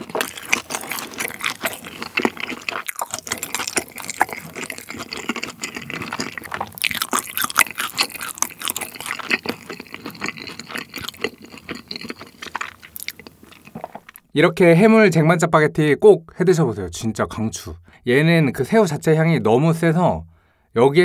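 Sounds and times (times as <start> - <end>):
person chewing food: 0.0 - 14.3.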